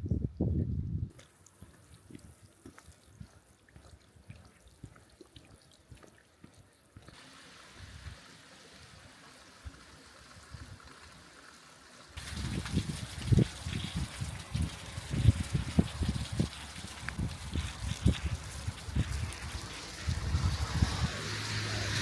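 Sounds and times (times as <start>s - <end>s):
water trickling and dripping: 1.1s - 22.0s
running water hiss: 7.1s - 22.0s.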